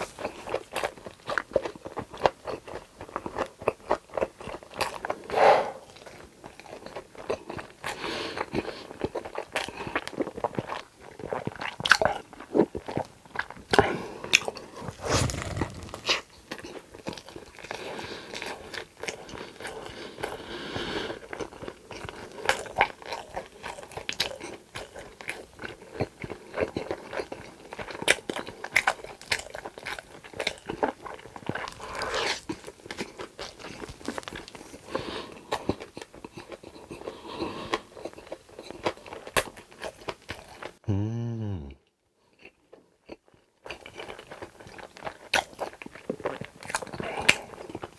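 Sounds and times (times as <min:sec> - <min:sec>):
crunchy chewing: 0:00.0 - 0:40.8, 0:42.3 - 0:47.9.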